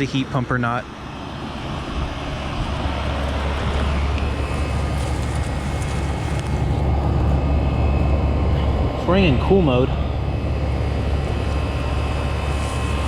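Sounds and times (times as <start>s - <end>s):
air conditioner unit humming: 0.0s - 13.0s.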